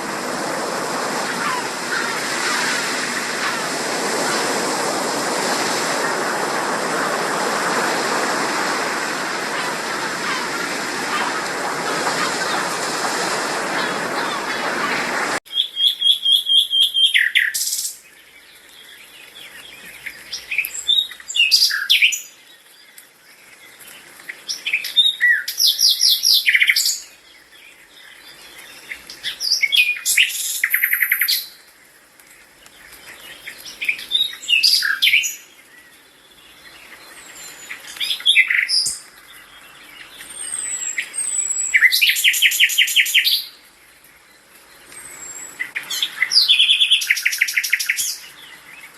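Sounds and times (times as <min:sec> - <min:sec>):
water rushing: 0:00.0 - 0:15.4.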